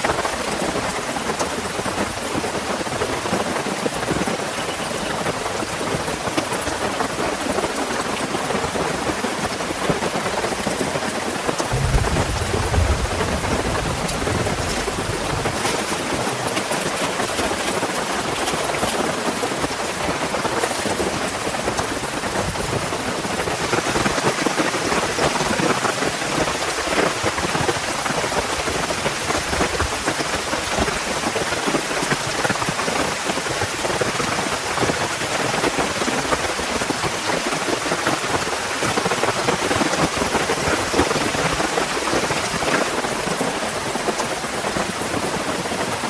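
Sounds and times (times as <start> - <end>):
low rumble of thunder: 11.7 - 17.1
heavy rain pouring: 11.7 - 18.5.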